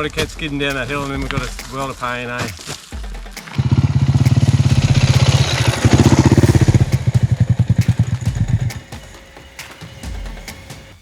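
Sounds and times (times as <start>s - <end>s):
dirt bike engine chugging: 3.0s - 9.3s.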